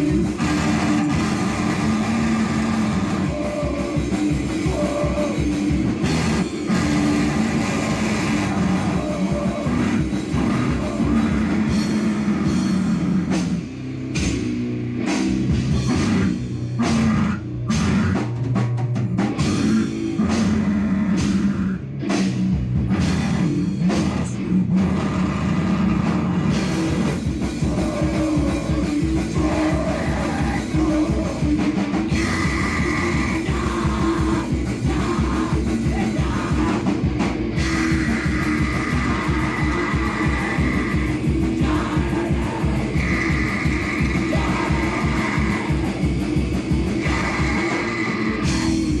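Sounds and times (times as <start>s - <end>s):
drum kit hits: 0.0s - 20.4s
heavy distorted rock music: 0.0s - 49.0s.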